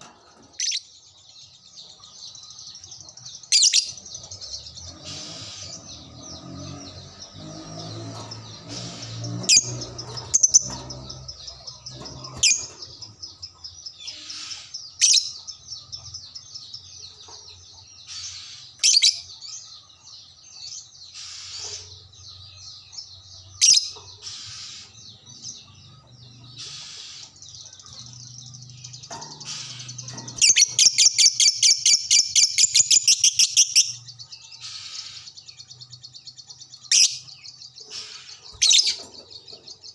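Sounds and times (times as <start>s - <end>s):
rapid bird trill: 2.3s - 15.7s, 23.6s - 39.9s
shrill bird calls: 13.9s - 15.6s, 21.1s - 22.2s, 23.6s - 25.3s, 26.3s - 28.2s, 28.9s - 39.6s.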